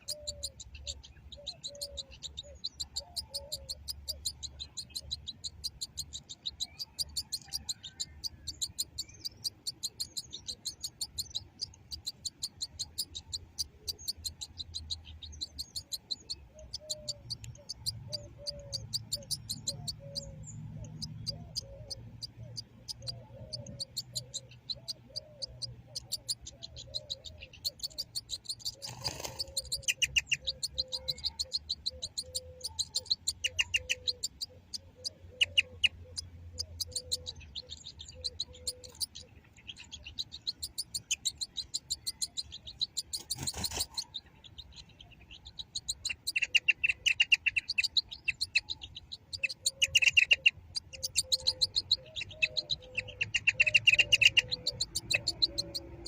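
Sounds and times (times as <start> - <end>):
finch singing: 0.0 - 56.0.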